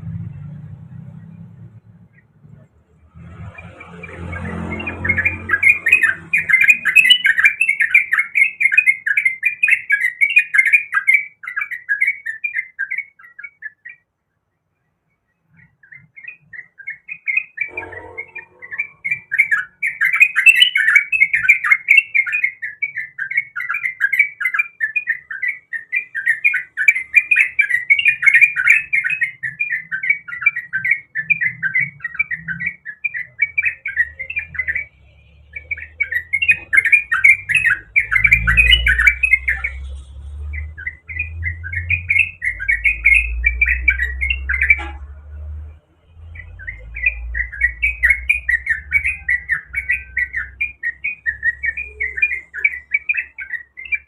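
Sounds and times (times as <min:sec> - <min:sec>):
bird singing bubbly chatter: 0:15.3 - 0:44.9.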